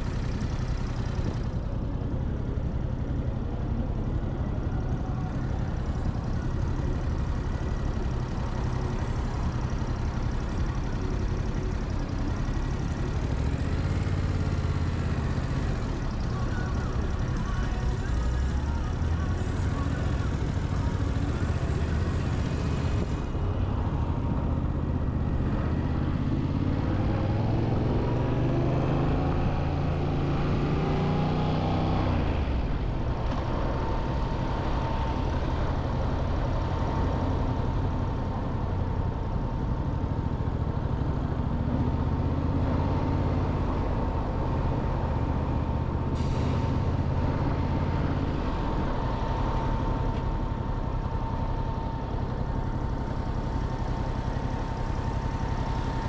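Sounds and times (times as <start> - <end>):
motorcycle engine accelerating: 23.8 - 32.4.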